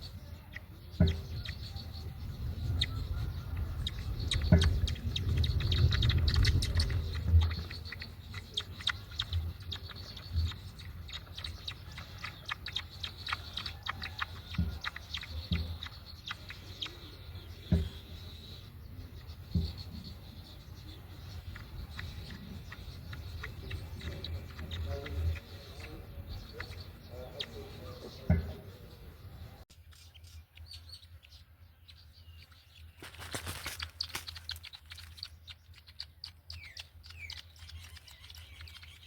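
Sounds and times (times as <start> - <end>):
birds chirping: 0.0 - 39.0
rustling ticks: 2.9 - 17.9, 32.4 - 39.0.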